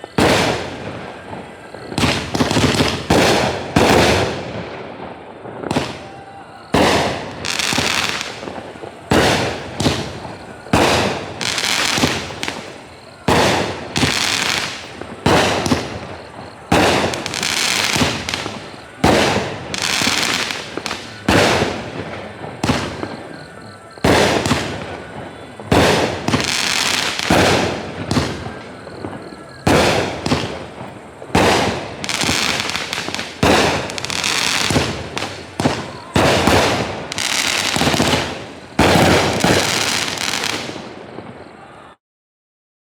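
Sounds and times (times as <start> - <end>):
firework shots with crackle: 0.0 - 41.9.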